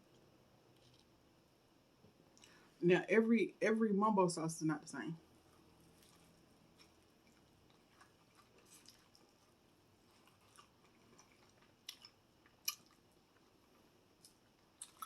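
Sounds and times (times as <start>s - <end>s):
chewing crispy fried food: 5.2s - 15.0s.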